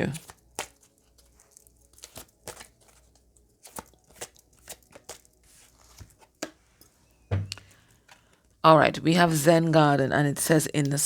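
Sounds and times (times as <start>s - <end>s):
cards tapping and rustling: 0.1s - 6.6s.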